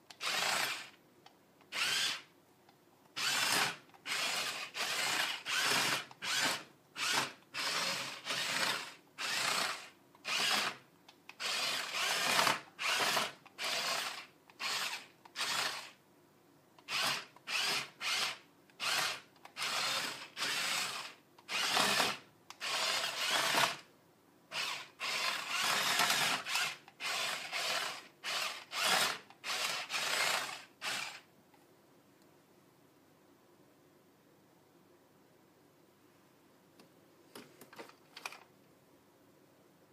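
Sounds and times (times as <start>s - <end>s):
toy motor gears whirring: 0.1s - 1.0s, 1.7s - 2.3s, 3.2s - 16.0s, 16.8s - 23.9s, 24.5s - 31.3s.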